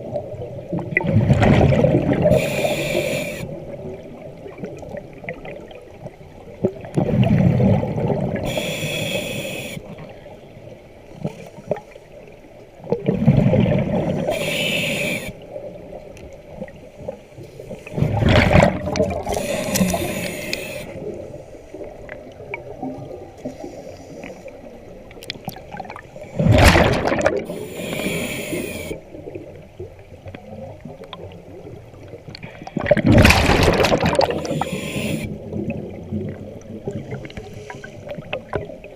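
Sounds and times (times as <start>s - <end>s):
exhaled bubbles gushing: 0.0s - 2.6s, 3.7s - 8.6s, 12.8s - 14.3s, 17.9s - 20.1s, 25.2s - 27.6s, 29.3s - 38.9s
quiet gurgling: 0.0s - 38.9s
diver breathing through regulator: 2.2s - 3.6s, 8.4s - 10.0s, 14.2s - 15.4s, 19.2s - 21.9s, 27.4s - 29.1s, 34.2s - 35.4s.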